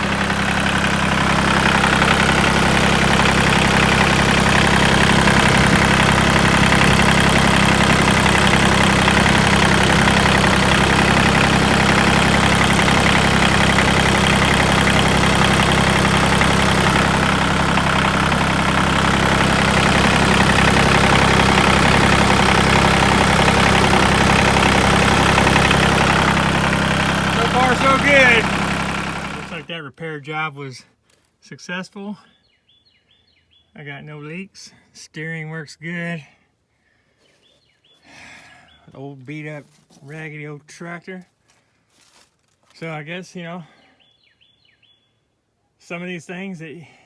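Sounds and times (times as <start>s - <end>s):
tractor diesel engine idling: 0.0s - 29.8s.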